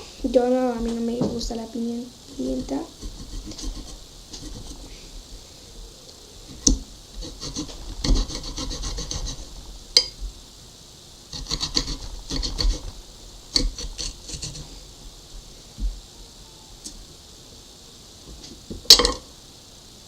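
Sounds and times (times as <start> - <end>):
knife slicing potato on board: 2.5 - 4.8, 6.5 - 9.4, 11.4 - 12.9, 13.5 - 14.7.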